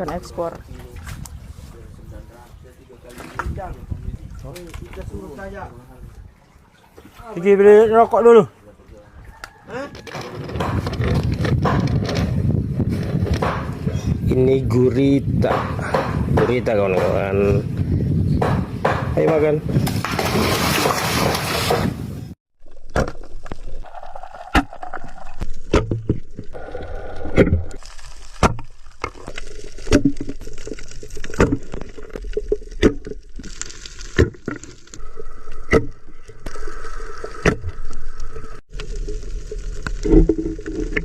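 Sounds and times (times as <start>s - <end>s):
water sloshing: 2.9s - 7.8s.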